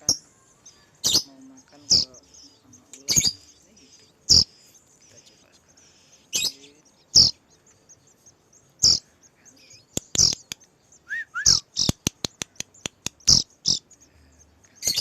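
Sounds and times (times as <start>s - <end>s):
low chirps: 0.0s - 15.0s
nestlings begging calls: 0.0s - 15.0s
sharp clicks: 9.8s - 10.8s, 11.8s - 13.4s.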